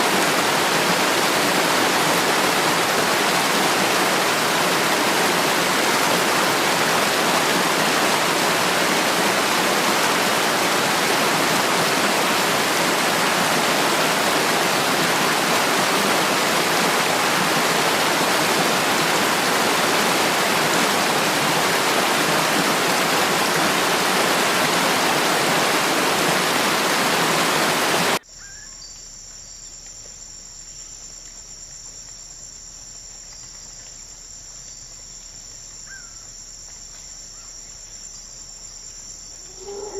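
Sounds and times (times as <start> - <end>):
rushing water: 0.0 - 28.2
high-pitched insect chorus: 28.2 - 39.9.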